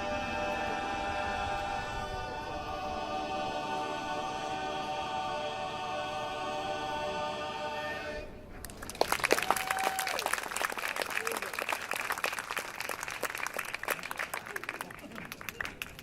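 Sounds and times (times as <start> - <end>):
barbershop group singing: 0.0 - 8.3
applause: 8.6 - 16.0.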